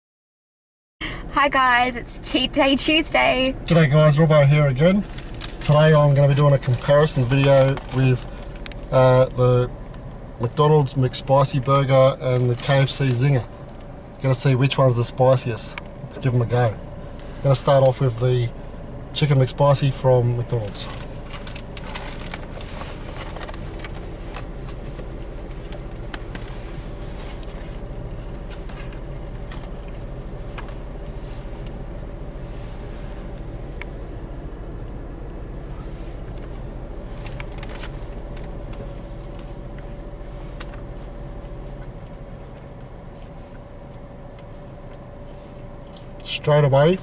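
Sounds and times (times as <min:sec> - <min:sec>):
steady low hum: 0:01.0 - 0:47.0.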